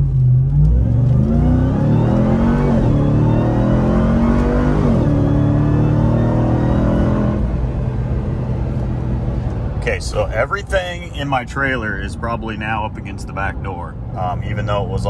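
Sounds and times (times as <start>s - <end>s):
truck engine accelerating hard: 0.0s - 15.0s.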